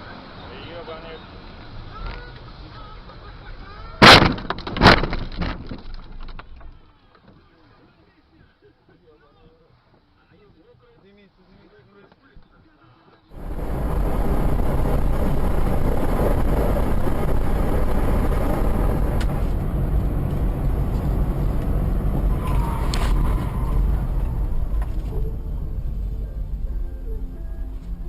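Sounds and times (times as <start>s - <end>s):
car engine and road rumble: 0.0s - 6.8s, 13.3s - 28.0s.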